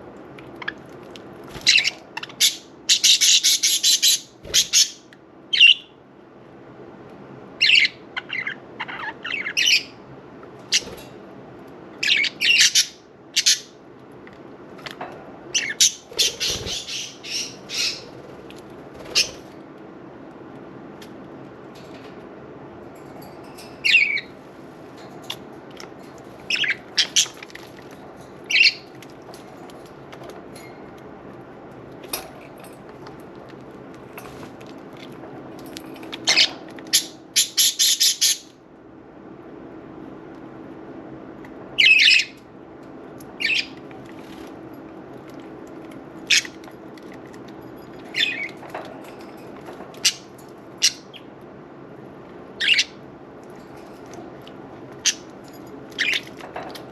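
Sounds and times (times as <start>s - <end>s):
budgerigars chirping and squawking: 1.6s - 5.8s, 7.6s - 10.0s, 12.0s - 13.7s, 15.6s - 18.1s, 19.1s - 19.4s, 26.5s - 27.5s, 28.5s - 28.9s, 36.0s - 38.5s, 41.8s - 42.4s, 43.4s - 43.8s, 48.1s - 48.6s, 52.6s - 53.0s, 56.0s - 56.4s.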